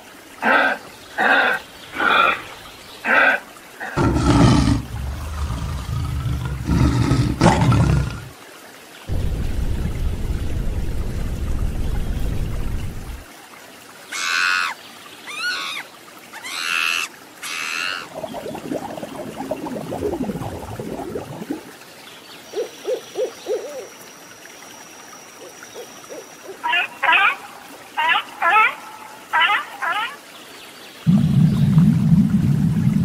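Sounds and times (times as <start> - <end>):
owl screeches: 14.1 - 15.8, 16.4 - 18.1.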